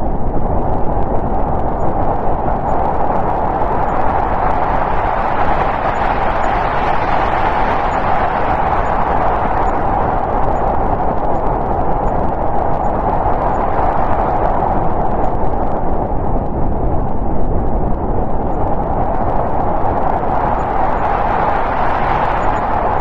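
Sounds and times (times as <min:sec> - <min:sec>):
snowstorm wind blowing: 0:00.0 - 0:23.0.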